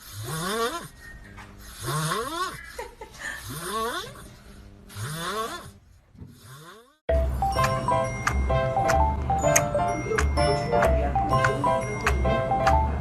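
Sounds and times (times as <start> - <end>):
squeaky snoring: 0.0 - 2.8, 3.4 - 4.3, 4.9 - 7.0
music: 7.1 - 13.0.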